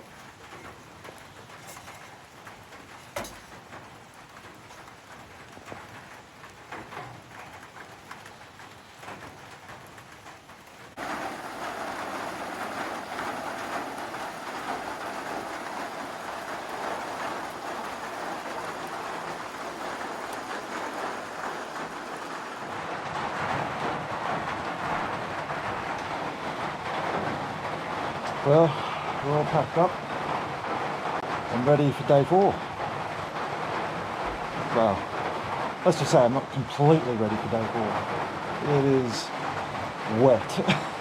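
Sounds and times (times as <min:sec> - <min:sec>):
rain falling: 0:00.0 - 0:41.0
scattered drips: 0:10.9 - 0:22.9.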